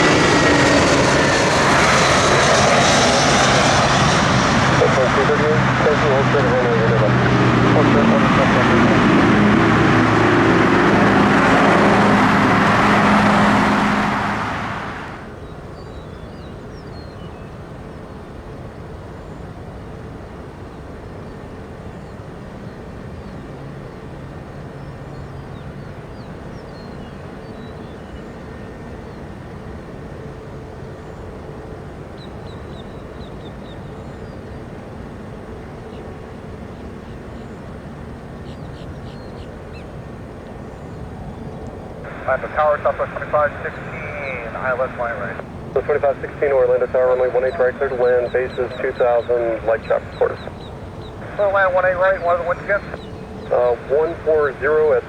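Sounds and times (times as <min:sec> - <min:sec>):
jet engines roaring: 0:00.0 - 0:15.4, 0:39.6 - 0:55.0
steady outdoor hum: 0:00.0 - 0:55.0.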